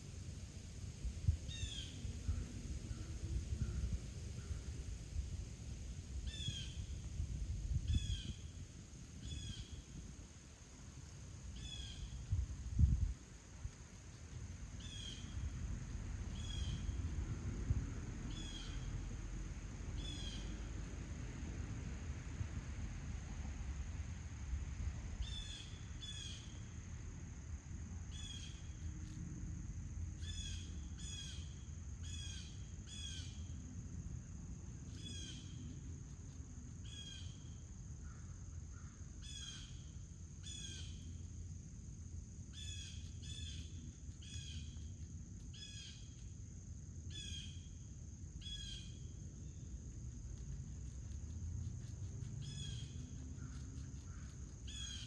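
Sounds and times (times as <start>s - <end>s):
low outdoor rumble: 0.0s - 55.0s
high insect drone: 1.5s - 55.0s
bird chirping: 11.6s - 12.3s, 52.4s - 55.0s.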